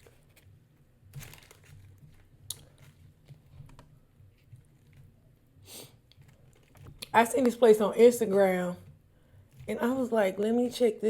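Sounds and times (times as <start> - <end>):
chewing crispy food: 1.2 - 3.9.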